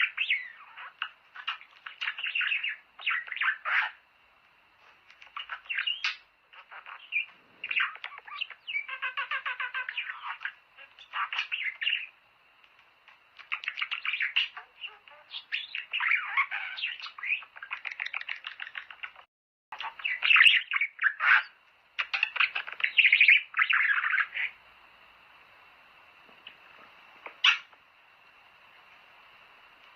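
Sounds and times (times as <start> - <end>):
budgerigars chattering and warbling: 0.0 - 4.0, 5.1 - 12.2, 13.4 - 24.6, 27.3 - 27.8.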